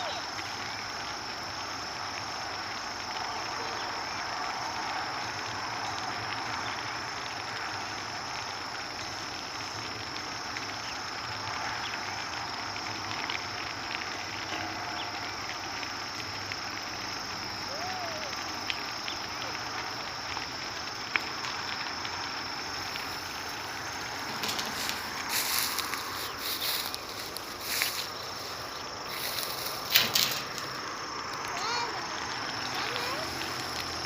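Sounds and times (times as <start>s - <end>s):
rushing hiss: 0.0s - 34.0s
high-pitched insect drone: 14.4s - 34.0s.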